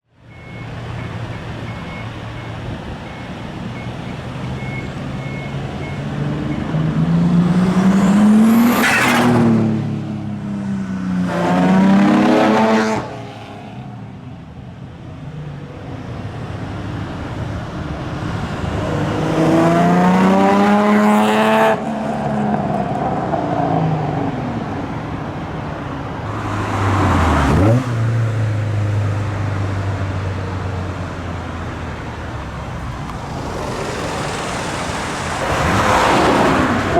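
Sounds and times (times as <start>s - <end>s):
old cars accelerating past: 32.4s - 36.9s.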